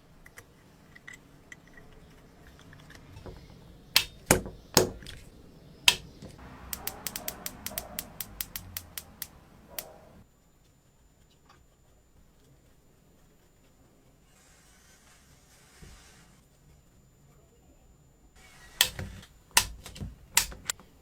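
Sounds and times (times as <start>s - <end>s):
sharp clicks: 4.0s - 5.2s, 5.9s - 10.1s, 19.6s - 20.8s.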